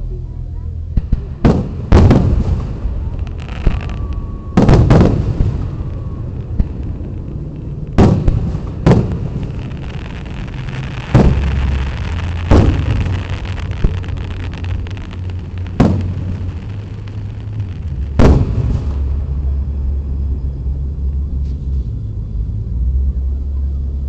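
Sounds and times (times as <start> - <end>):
steady low rumble: 0.0 - 24.0
firework booms with echo: 1.0 - 20.1.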